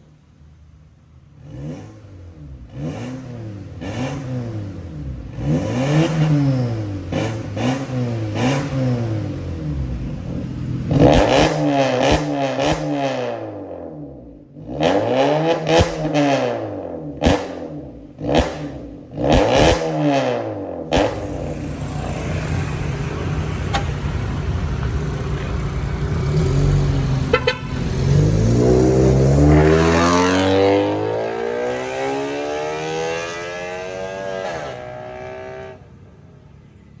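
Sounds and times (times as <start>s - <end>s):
car engine revving: 1.4s - 35.8s
exhaust pops: 20.8s - 21.6s.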